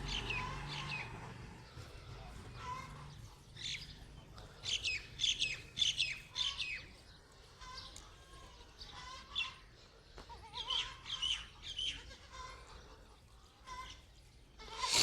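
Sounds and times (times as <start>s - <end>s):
birds chirping: 14.8s - 15.0s.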